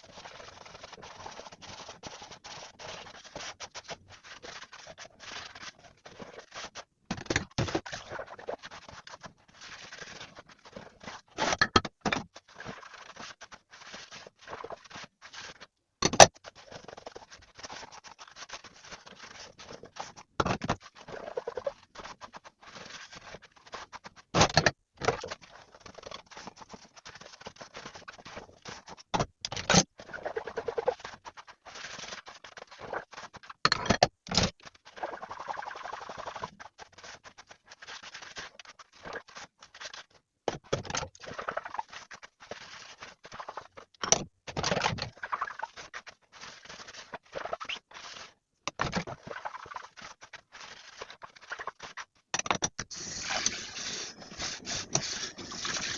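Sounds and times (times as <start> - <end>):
scrubbing dishes: 52.9 - 55.9.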